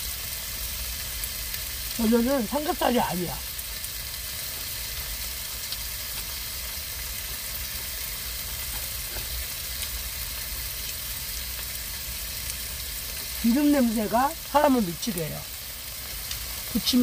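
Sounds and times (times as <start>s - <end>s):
oil sizzling in frying pan: 0.0s - 17.0s.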